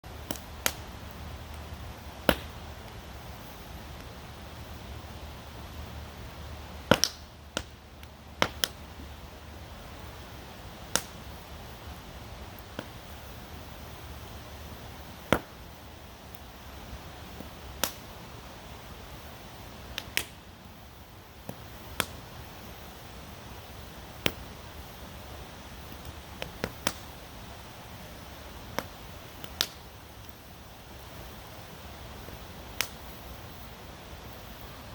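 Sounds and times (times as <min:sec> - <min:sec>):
campfire crackling and popping: 0:00.0 - 0:34.9
steady rushing hiss: 0:00.0 - 0:34.9
sharp wood pops: 0:02.2 - 0:02.6, 0:06.9 - 0:07.7, 0:08.4 - 0:08.8, 0:10.9 - 0:11.2, 0:15.3 - 0:15.6, 0:17.8 - 0:18.0, 0:21.5 - 0:22.2, 0:26.0 - 0:27.1, 0:28.7 - 0:29.8.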